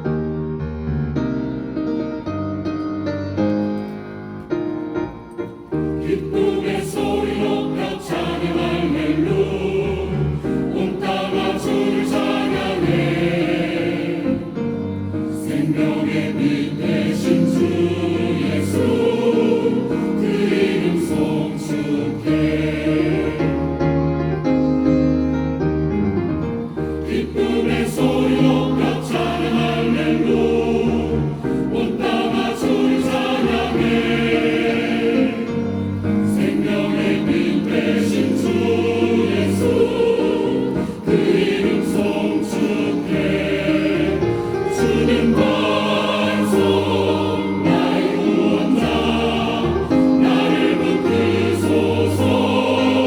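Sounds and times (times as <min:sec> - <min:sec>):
keyboard accompaniment: 0:00.0 - 0:53.0
church choir singing: 0:01.5 - 0:53.0.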